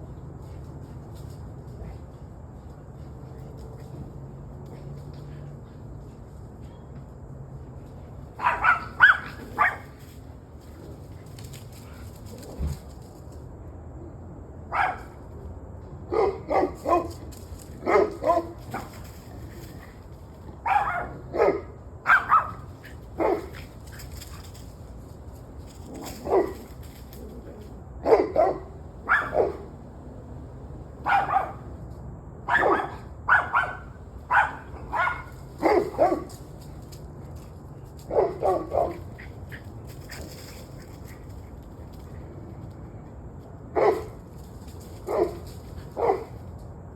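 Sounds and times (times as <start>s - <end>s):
dog barking: 8.4s - 9.9s, 14.7s - 15.2s, 16.1s - 17.2s, 17.8s - 18.9s, 20.6s - 23.6s, 26.0s - 26.7s, 28.0s - 29.7s, 31.0s - 31.7s, 32.5s - 36.3s, 38.1s - 39.1s, 43.8s - 44.2s, 45.1s - 45.4s, 46.0s - 46.3s
steady low hum: 21.7s - 32.3s.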